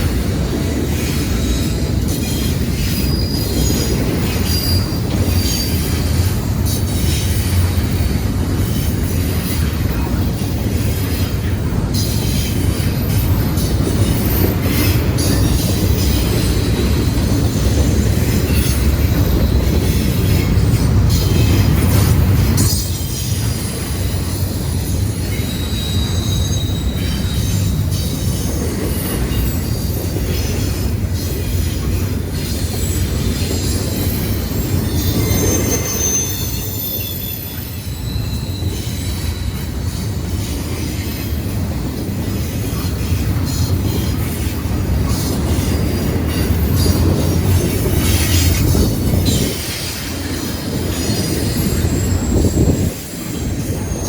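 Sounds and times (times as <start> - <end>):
train wheels rumbling on rail: 0.0 - 54.0
high-pitched wheel squeal: 2.8 - 6.1, 22.6 - 27.6, 32.9 - 39.8.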